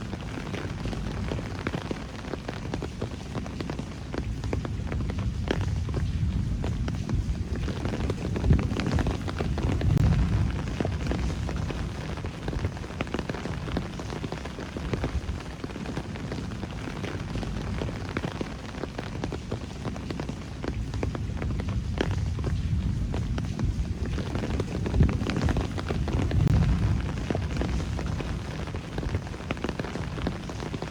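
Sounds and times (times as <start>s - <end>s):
rain drops splashing: 0.0s - 30.9s
low rumble: 4.7s - 14.0s, 20.8s - 30.4s.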